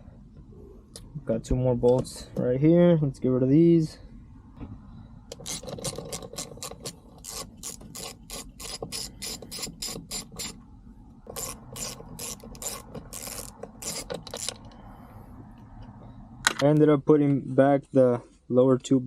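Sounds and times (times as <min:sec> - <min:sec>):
ratchet wrench clicking: 0:05.3 - 0:10.6, 0:11.3 - 0:14.8.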